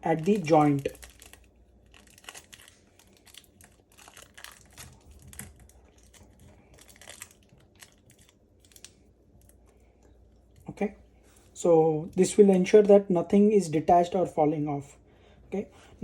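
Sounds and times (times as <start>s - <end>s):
adhesive tape crinkling: 0.0s - 9.6s.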